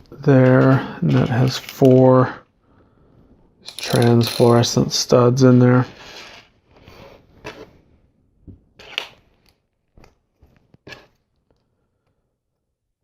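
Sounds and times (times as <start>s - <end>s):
plastic bricks clicking together: 3.7s - 4.6s.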